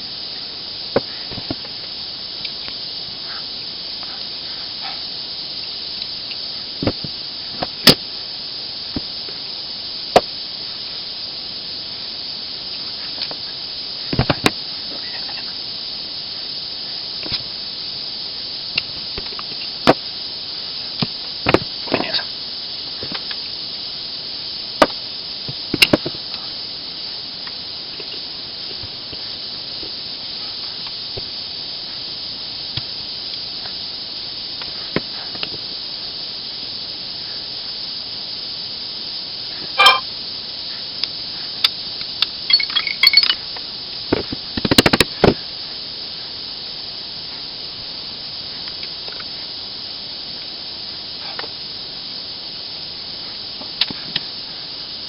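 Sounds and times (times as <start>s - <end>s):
steady high hiss: 0.0s - 55.0s
small metal parts clicking: 42.2s - 43.4s.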